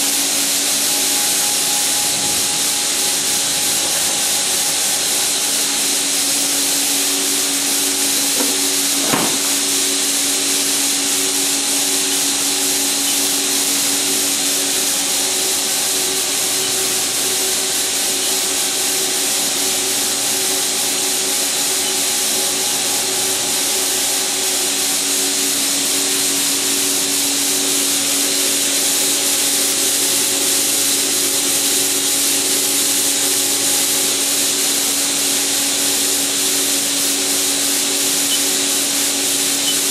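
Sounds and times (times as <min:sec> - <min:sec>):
lathe hum: 0:00.0 - 0:39.9
steady hiss: 0:00.0 - 0:39.9
short knock: 0:08.3 - 0:09.6.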